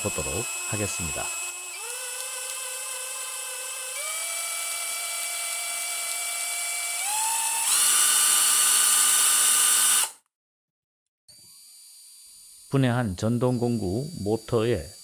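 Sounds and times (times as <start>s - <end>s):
electric motor whining: 0.0s - 10.2s.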